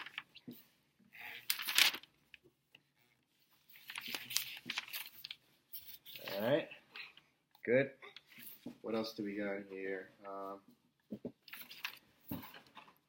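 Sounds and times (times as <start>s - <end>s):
packaging rustling and crinkling: 1.4s - 2.1s, 3.7s - 6.6s, 11.4s - 12.8s.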